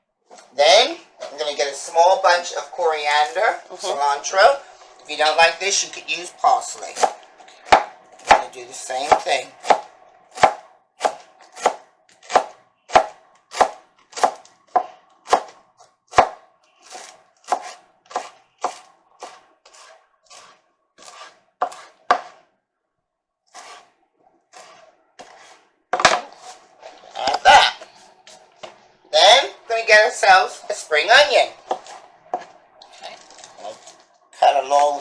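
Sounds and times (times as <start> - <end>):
knife chopping on cutting board: 7.0 - 22.4.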